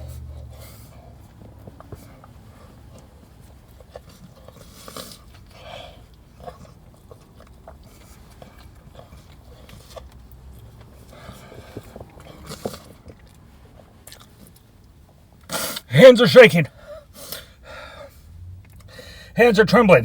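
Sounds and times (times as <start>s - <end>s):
person chewing fried chicken: 3.7s - 14.6s.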